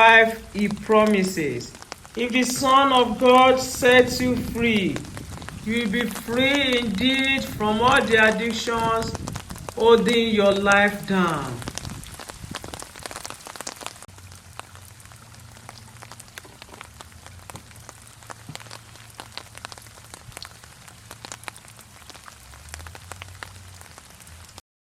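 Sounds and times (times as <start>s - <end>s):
rain drops pattering: 0.0s - 24.6s.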